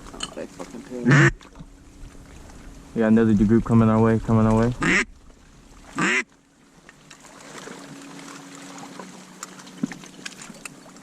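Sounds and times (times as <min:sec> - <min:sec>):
duck quack: 0:01.0 - 0:01.4, 0:04.8 - 0:05.1, 0:06.0 - 0:06.2.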